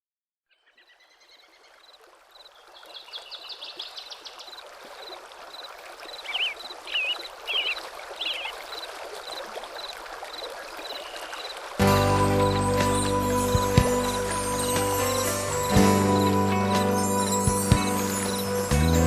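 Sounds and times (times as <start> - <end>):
bird chirping: 0.5 - 8.8
stream water running: 0.8 - 19.0
bird warbling: 6.2 - 8.8.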